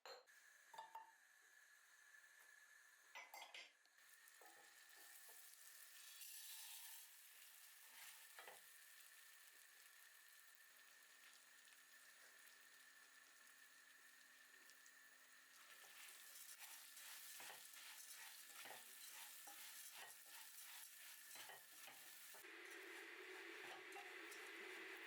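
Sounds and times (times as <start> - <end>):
food sizzling in a frying pan: 4.0 - 25.0
utensil stirring and scraping: 15.6 - 25.0.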